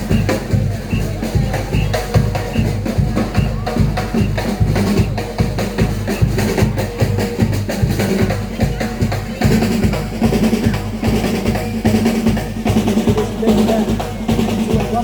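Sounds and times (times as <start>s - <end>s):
drumming on snare and bass drums: 0.0s - 15.0s.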